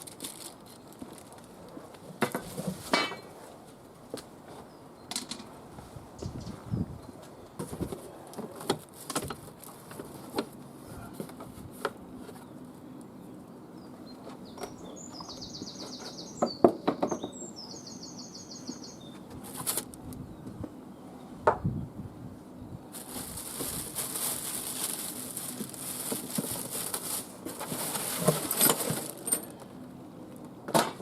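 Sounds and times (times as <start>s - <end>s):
packaging and parts clattering: 0.0s - 1.6s, 22.9s - 29.6s.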